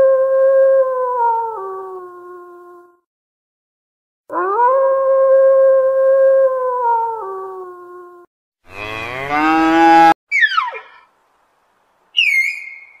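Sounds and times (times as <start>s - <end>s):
cow mooing: 8.7s - 10.2s
high animal call: 8.7s - 11.1s, 12.2s - 13.0s.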